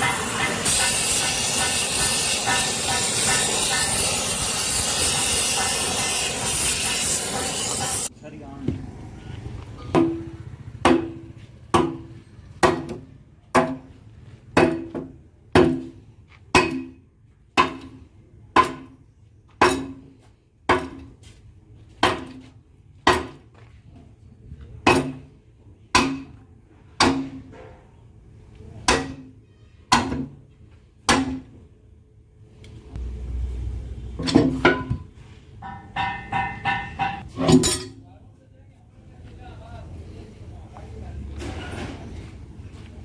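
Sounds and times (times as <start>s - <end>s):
hammer striking metal: 0.0s - 8.1s, 9.9s - 13.9s, 16.6s - 17.0s, 17.6s - 18.0s, 19.6s - 20.1s, 28.9s - 29.3s, 34.2s - 38.0s.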